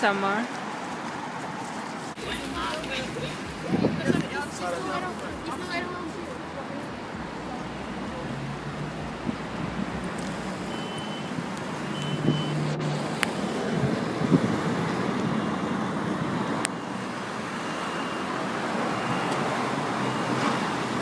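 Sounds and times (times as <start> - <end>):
traffic rushing: 0.0 - 21.0.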